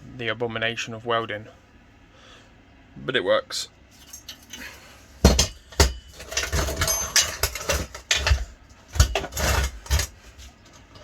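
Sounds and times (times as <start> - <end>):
metal parts rattling and scraping: 3.9 - 11.0
sharp knocks of metal parts: 5.2 - 11.0.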